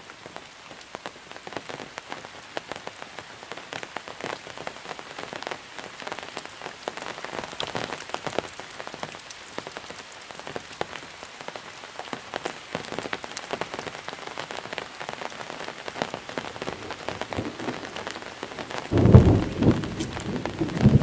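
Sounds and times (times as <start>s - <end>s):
rain drops pattering: 0.0s - 21.0s
deep thunder rumble: 18.9s - 21.0s.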